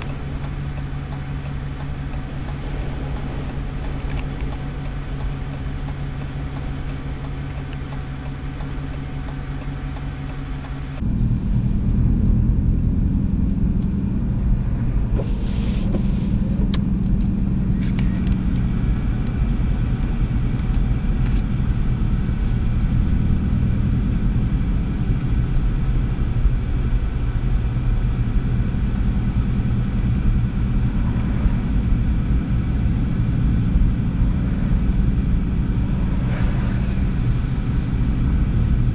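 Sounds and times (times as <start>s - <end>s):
fast regular ticking: 0.0s - 11.0s
vehicle low rumble: 0.0s - 38.9s.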